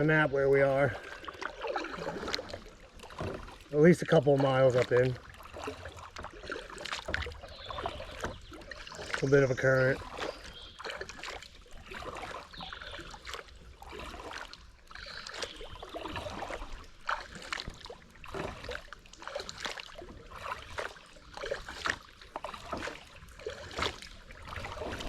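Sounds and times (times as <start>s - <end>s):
paddle splashing in water: 0.0s - 25.0s.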